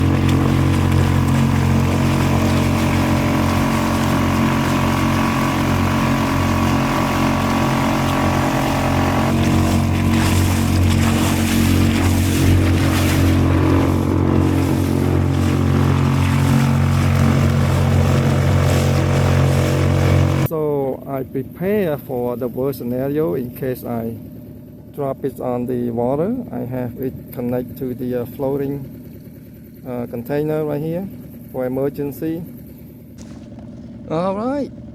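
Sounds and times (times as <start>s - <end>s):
water and wind rush: 0.0s - 20.5s
outboard motor running: 0.0s - 34.9s.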